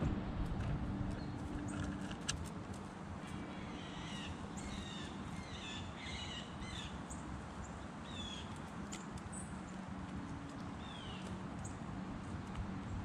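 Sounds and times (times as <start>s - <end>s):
low background rumble: 0.0s - 5.6s
harsh bird calls: 3.4s - 7.3s.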